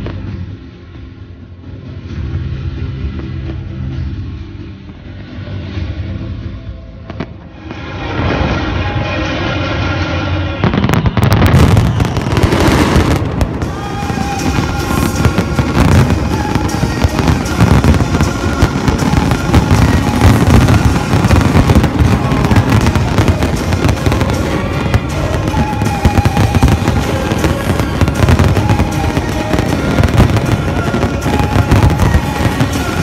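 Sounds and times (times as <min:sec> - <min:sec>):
music playing: 0:00.0 - 0:33.0
fireworks bangs and crackles: 0:07.1 - 0:09.2, 0:09.8 - 0:33.0.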